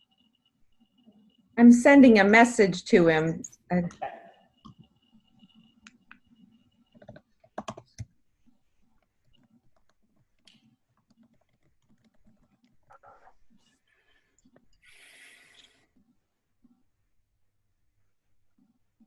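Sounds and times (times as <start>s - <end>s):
keyboard typing: 3.4s - 13.6s.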